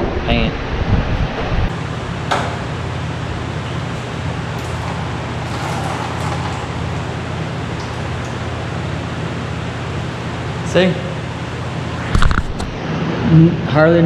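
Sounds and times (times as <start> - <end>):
vacuum cleaner motor running: 1.7 - 9.0.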